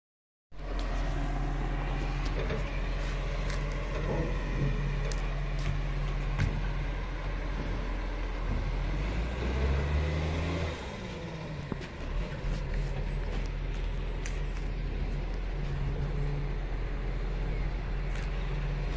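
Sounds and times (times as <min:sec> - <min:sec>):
garbage truck engine running: 0:00.6 - 0:18.9
clanks and knocks: 0:02.0 - 0:09.5.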